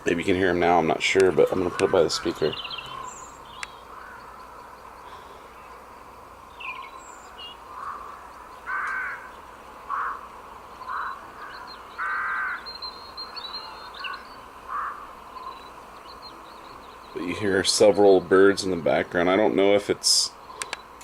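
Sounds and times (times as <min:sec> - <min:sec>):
crow-like caws from speaker: 0:01.2 - 0:05.4, 0:07.7 - 0:15.6
faint high bird chirps: 0:01.7 - 0:18.5, 0:20.3 - 0:21.0.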